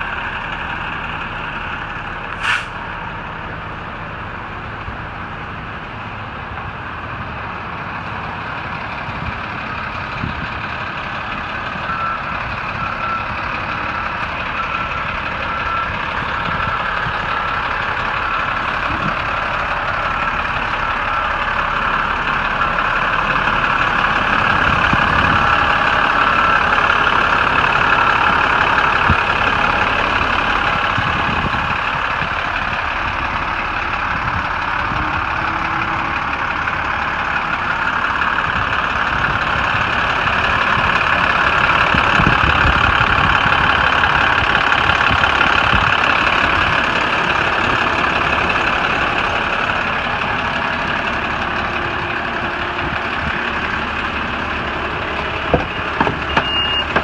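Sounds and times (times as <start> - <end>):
diesel truck engine running: 0.0 - 57.0.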